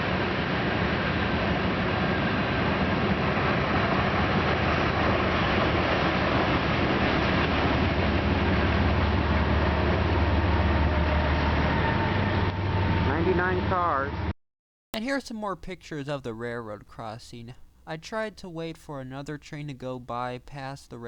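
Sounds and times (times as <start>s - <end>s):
low engine hum: 0.0s - 14.3s
freight train rumbling and rattling: 2.2s - 13.9s.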